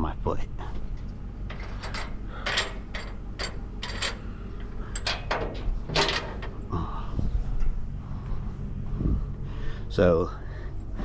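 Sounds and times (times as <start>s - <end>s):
steady low rumble: 0.0s - 11.0s
metal knocks and clatters: 0.8s - 6.7s.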